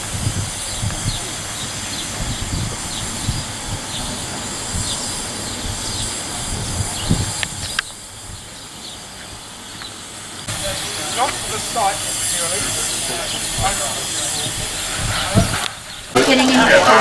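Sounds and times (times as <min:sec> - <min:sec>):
wind on microphone: 0:00.0 - 0:09.5, 0:13.4 - 0:17.0
small birds chirping: 0:00.2 - 0:11.4.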